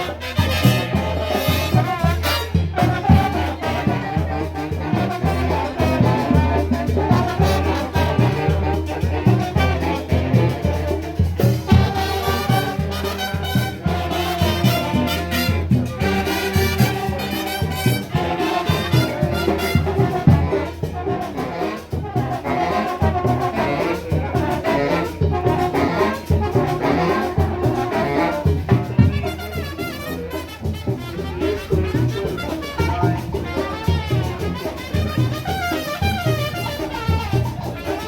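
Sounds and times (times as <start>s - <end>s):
steady drum beat: 0.0s - 38.0s
trumpets and trombones: 0.0s - 38.0s.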